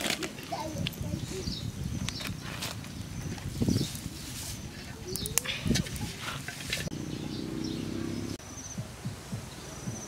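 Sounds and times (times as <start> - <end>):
birds calling: 0.5 - 10.0.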